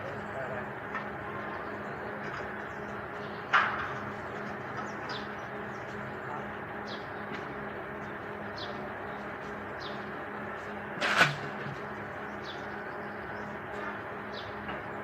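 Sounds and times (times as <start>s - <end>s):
steady low hum: 0.0s - 15.0s
bird chirping: 8.0s - 10.5s, 12.2s - 13.6s.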